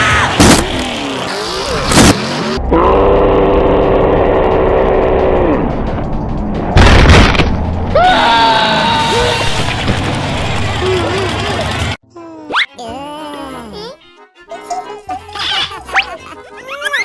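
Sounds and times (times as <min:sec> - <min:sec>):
background music: 0:02.5 - 0:17.0
sharp hit: 0:06.7 - 0:07.9.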